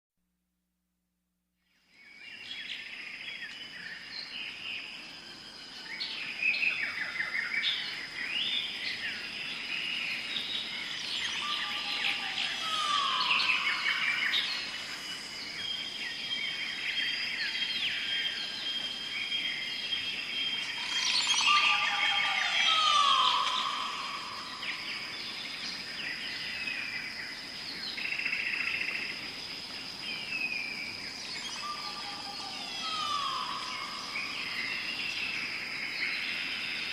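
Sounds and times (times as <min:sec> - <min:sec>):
birds chattering and calling: 0:10.8 - 0:15.2, 0:20.0 - 0:25.7, 0:31.3 - 0:35.4.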